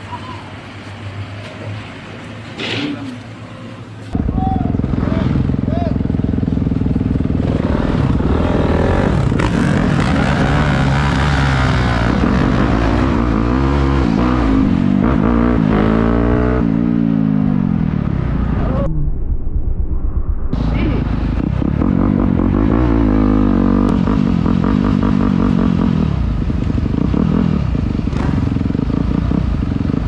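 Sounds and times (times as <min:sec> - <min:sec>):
dirt bike engine revving: 0:04.2 - 0:18.5, 0:20.6 - 0:30.0
rushing air noise: 0:16.6 - 0:23.4.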